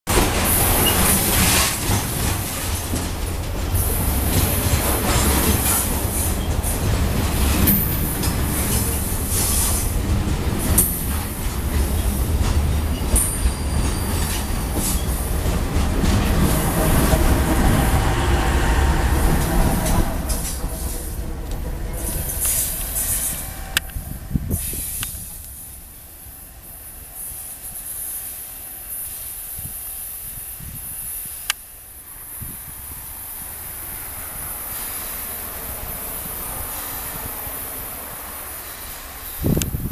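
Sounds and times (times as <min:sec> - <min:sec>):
steel wheels rumbling on rail: 0:00.1 - 0:39.9
high wheel squeals: 0:12.9 - 0:15.3.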